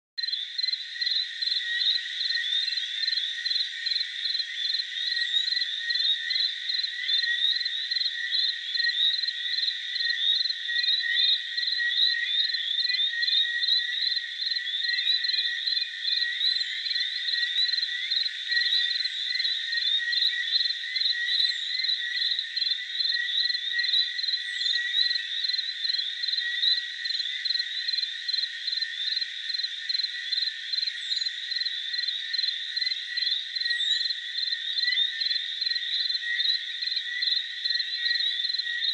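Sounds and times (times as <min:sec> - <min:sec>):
frogs and insects chorus: 0:00.2 - 0:38.9.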